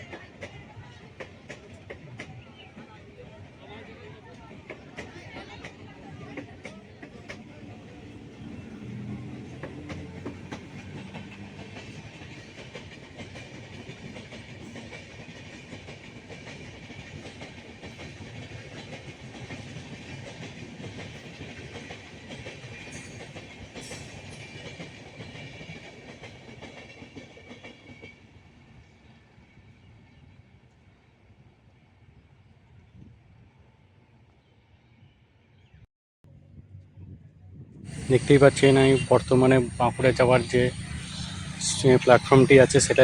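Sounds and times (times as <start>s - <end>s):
train wheels clattering: 4.5s - 28.1s.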